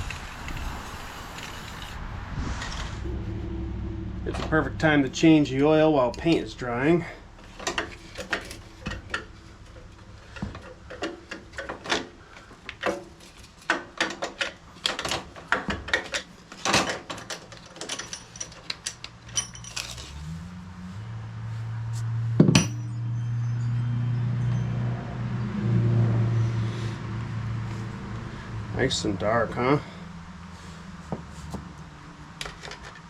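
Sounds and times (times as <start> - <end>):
low motor hum: 0.0 - 12.4
metal hand tools clinking: 16.8 - 20.2.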